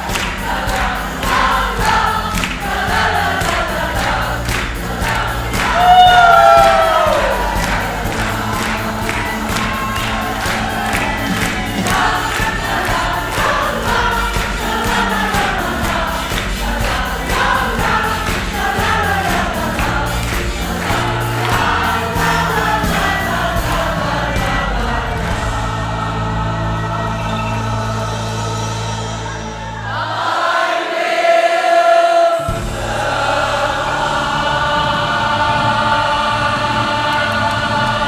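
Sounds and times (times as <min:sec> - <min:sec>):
backing track with beat and bass: 0:00.0 - 0:29.8
choir singing: 0:00.0 - 0:38.0.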